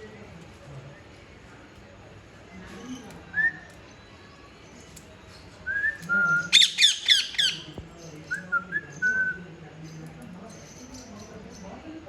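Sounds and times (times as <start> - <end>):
parrot whistling: 6.4 - 7.6
parrot squawking: 6.5 - 7.7.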